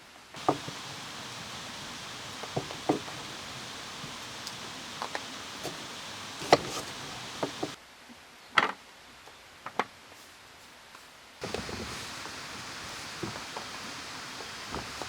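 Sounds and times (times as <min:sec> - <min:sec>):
sharp knocks and clicks: 0:00.4 - 0:07.8
steady hiss: 0:00.4 - 0:07.8, 0:11.4 - 0:15.0.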